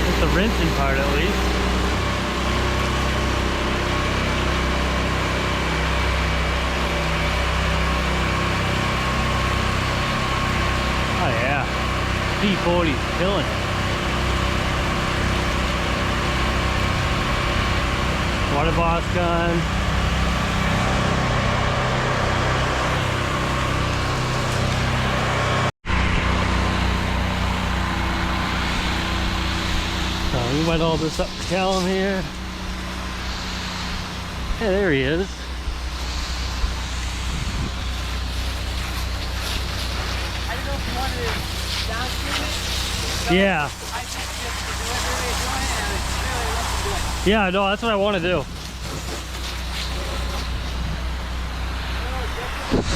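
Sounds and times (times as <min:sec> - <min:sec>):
pressure washer engine running: 0:00.0 - 0:52.9
water spray hissing: 0:27.0 - 0:52.9.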